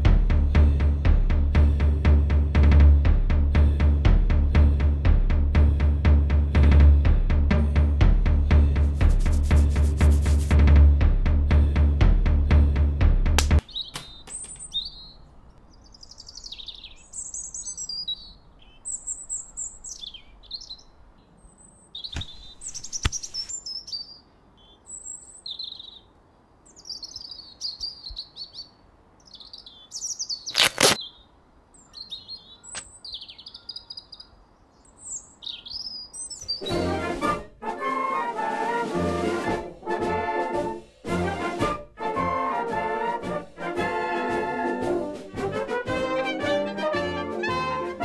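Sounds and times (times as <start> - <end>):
small birds chirping: 13.6 - 36.9.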